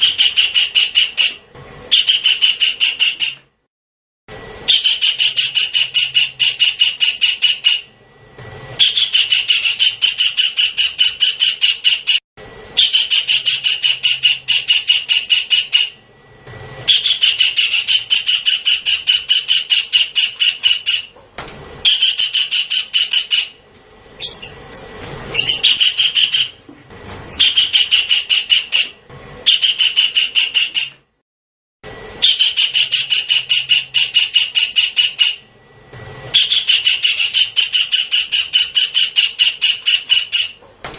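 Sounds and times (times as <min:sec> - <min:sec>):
bird squealing notes: 0:00.0 - 0:03.4, 0:04.7 - 0:07.9, 0:08.8 - 0:12.2, 0:12.8 - 0:16.0, 0:16.9 - 0:21.1, 0:24.2 - 0:26.6, 0:27.3 - 0:31.0, 0:32.2 - 0:35.4, 0:36.3 - 0:40.6
kingfisher rattling call: 0:00.0 - 0:03.4, 0:12.8 - 0:16.0, 0:16.9 - 0:21.1, 0:24.2 - 0:26.6, 0:27.3 - 0:31.0, 0:36.4 - 0:40.6.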